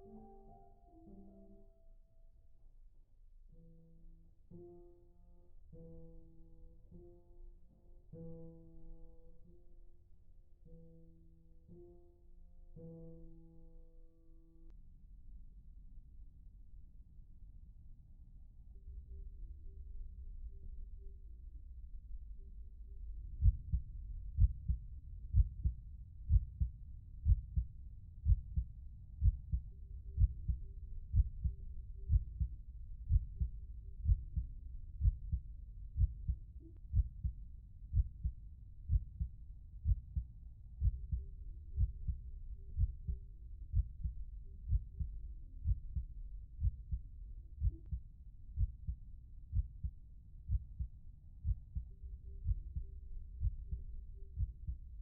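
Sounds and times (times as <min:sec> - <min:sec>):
heartbeat thumps: 0:23.4 - 0:23.8, 0:24.4 - 0:29.6, 0:30.2 - 0:32.5, 0:33.1 - 0:35.4, 0:36.0 - 0:47.0, 0:47.6 - 0:48.0, 0:48.6 - 0:49.9, 0:50.5 - 0:53.8, 0:54.4 - 0:54.8.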